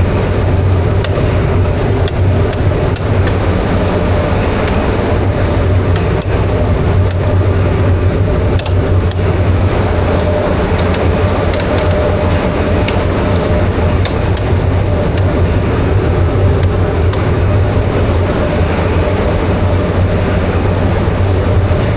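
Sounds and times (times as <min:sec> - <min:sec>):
diesel engine running: 0:00.0 - 0:21.9
sharp clicks: 0:08.5 - 0:09.4, 0:10.0 - 0:17.4.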